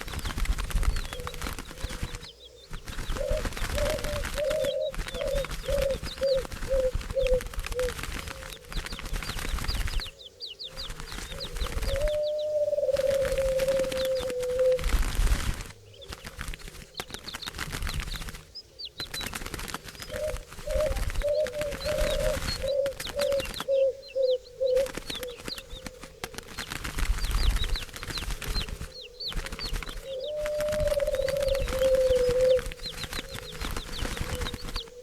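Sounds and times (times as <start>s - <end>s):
wings fluttering: 0.0s - 35.0s
low wavering cooing call: 3.2s - 8.4s, 11.3s - 14.9s, 20.1s - 25.4s, 30.0s - 35.0s.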